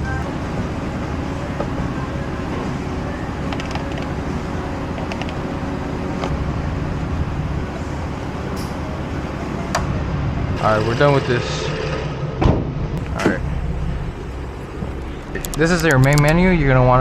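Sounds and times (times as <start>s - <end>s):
faint hum: 0.0s - 17.0s
low mechanical rumble: 0.0s - 17.0s.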